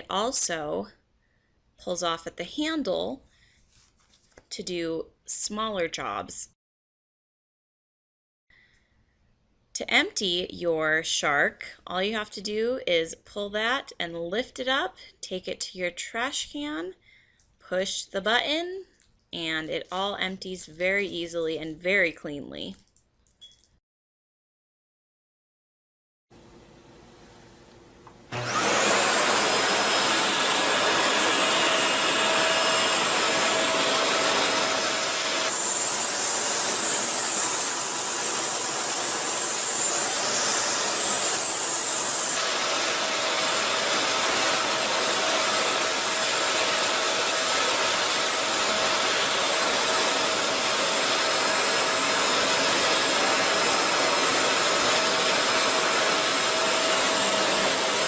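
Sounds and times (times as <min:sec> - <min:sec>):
vacuum cleaner motor whining: 0:28.0 - 0:58.0.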